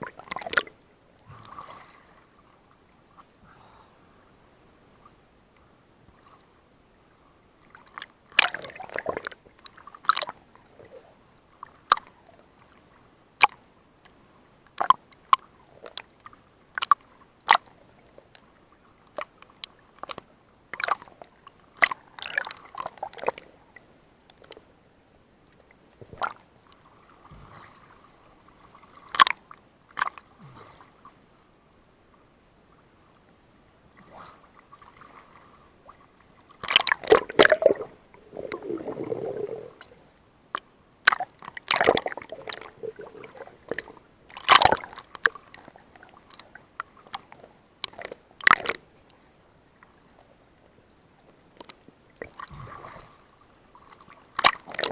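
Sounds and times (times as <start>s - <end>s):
water splashing: 0.0s - 2.3s, 7.8s - 10.4s, 36.6s - 46.6s, 53.8s - 54.9s.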